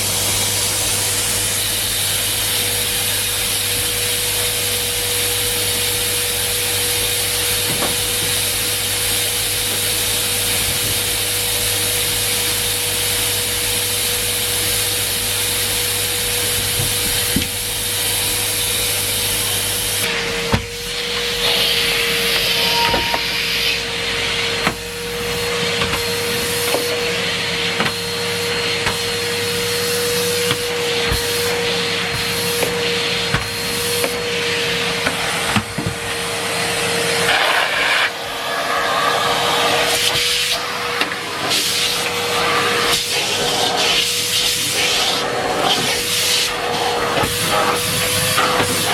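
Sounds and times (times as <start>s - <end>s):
vacuum cleaner whine and rushing air: 0.0s - 48.9s.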